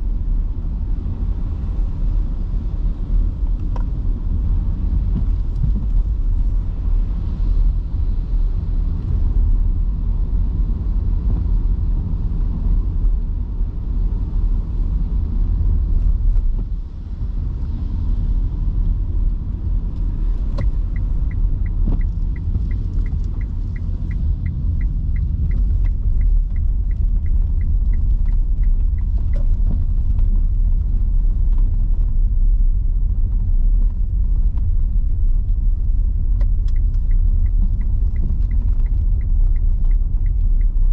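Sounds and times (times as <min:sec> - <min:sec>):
tyre and road rumble: 0:00.0 - 0:40.9
turn signal ticking: 0:19.7 - 0:32.0, 0:35.5 - 0:40.9.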